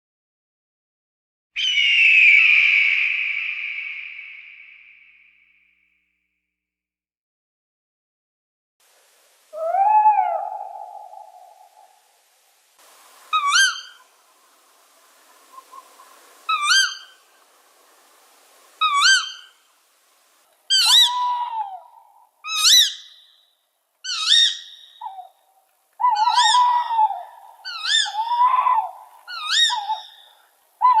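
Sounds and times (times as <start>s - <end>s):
bird of prey calling: 1.6s - 5.2s, 9.6s - 12.0s, 13.2s - 14.2s, 15.1s - 19.7s, 20.7s - 23.4s, 24.0s - 25.4s, 26.0s - 31.0s
lower bird call: 1.6s - 5.6s, 9.5s - 19.7s, 20.7s - 31.0s.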